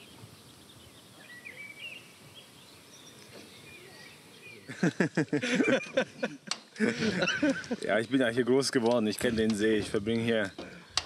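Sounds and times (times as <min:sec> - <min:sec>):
faint birdsong: 0:00.0 - 0:11.0
man's voice: 0:07.7 - 0:10.6.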